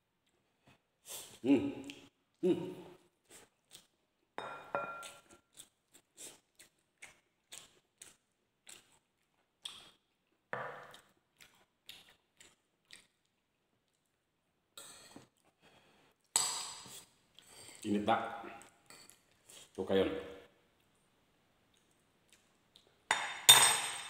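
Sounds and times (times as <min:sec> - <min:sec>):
person chewing and lip-smacking: 0:01.8 - 0:02.2, 0:03.3 - 0:04.0, 0:05.0 - 0:14.2.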